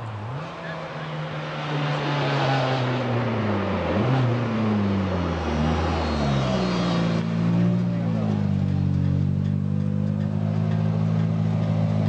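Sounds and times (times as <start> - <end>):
rally car engine slowing: 3.3 - 12.0.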